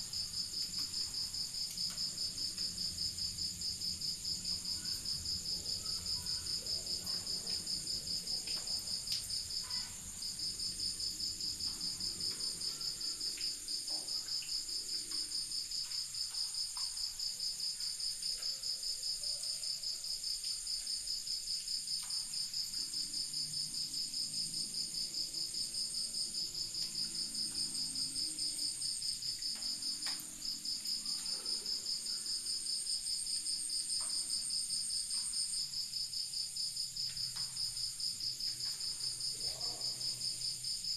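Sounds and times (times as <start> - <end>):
crickets trilling: 0.0 - 40.9.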